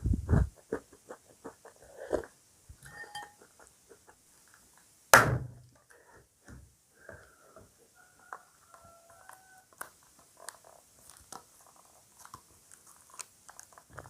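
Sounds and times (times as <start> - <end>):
loud sharp knock: 5.2 - 5.6
crunching cereal: 8.3 - 14.0.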